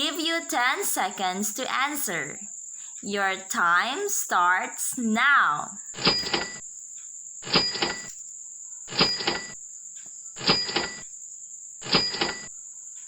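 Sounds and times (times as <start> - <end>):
high-pitched hiss: 0.0 - 12.8.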